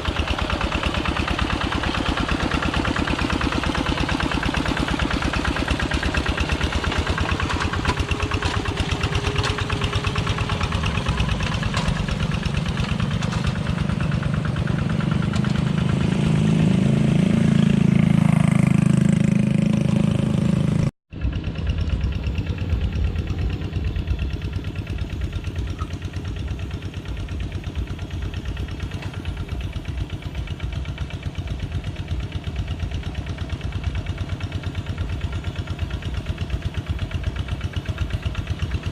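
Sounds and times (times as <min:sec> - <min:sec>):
walking tractor engine running: 0:00.0 - 0:38.9.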